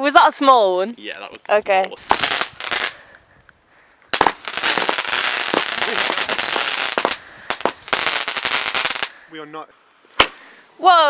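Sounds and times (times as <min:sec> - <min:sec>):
firework crackling: 0:01.9 - 0:03.3, 0:04.1 - 0:11.0.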